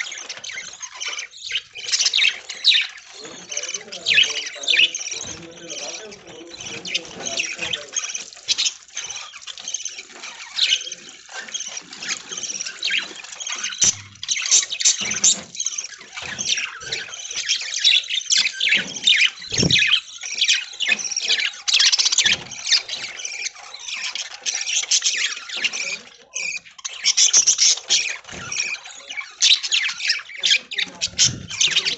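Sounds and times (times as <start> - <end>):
budgerigars chattering: 0.0 - 31.9.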